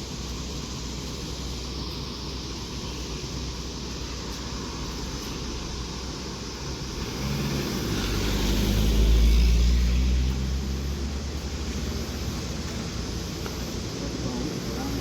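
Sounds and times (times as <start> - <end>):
road noise: 0.0 - 15.0
vehicle engine passing: 6.7 - 14.9.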